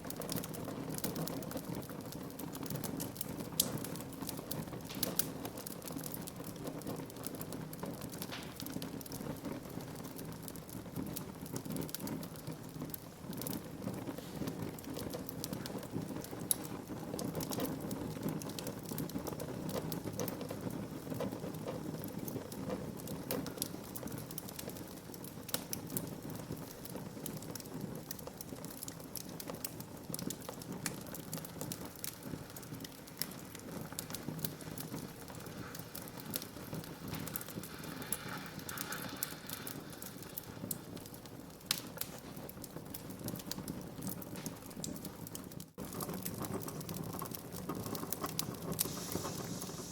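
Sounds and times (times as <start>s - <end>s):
fire pops and snaps: 0.0s - 49.9s
wood fire crackling: 0.0s - 49.9s.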